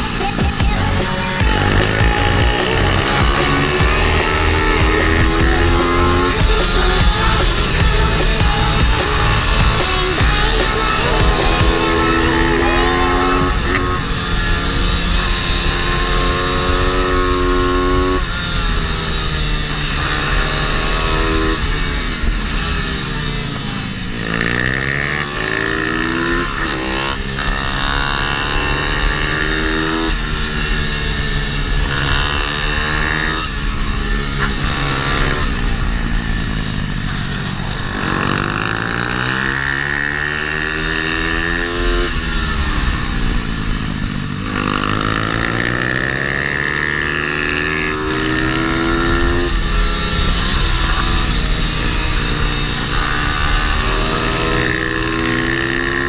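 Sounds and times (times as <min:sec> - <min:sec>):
small motorbike engine revving: 0:00.0 - 0:56.0.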